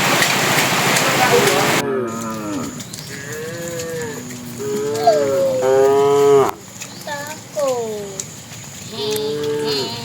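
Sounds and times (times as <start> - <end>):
heavy rain hiss: 0.0 - 1.8
cattle mooing: 1.8 - 6.6, 9.1 - 10.0.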